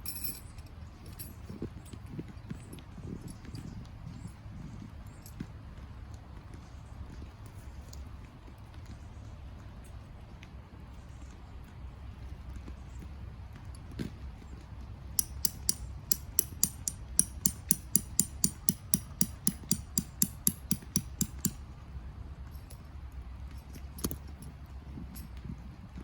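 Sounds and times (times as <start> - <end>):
sharp clicks: 15.2 - 21.6.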